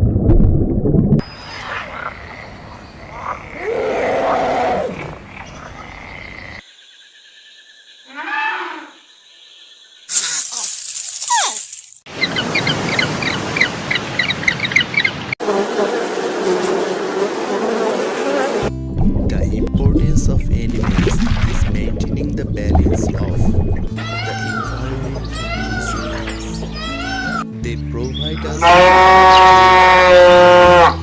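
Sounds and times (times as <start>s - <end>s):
animal calls: 1.2s - 6.6s, 24.0s - 27.5s, 28.6s - 31.0s.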